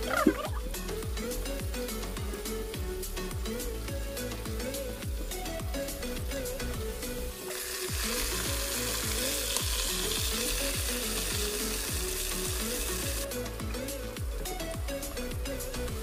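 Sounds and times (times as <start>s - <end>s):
background music: 0.0s - 16.0s
fish frying in oil: 7.3s - 13.3s.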